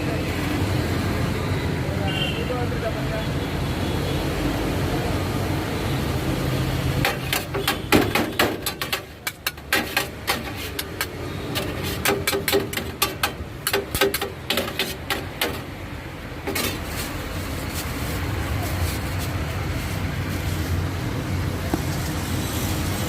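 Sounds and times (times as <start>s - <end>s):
traffic hum: 0.0s - 23.0s
metal utensil knocking on hard surface: 7.0s - 15.8s.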